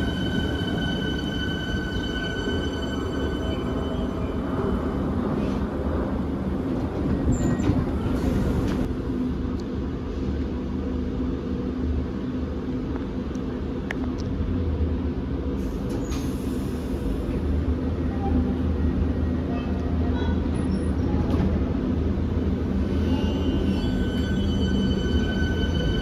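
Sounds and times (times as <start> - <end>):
electric train humming: 0.0 - 8.9, 22.0 - 26.0.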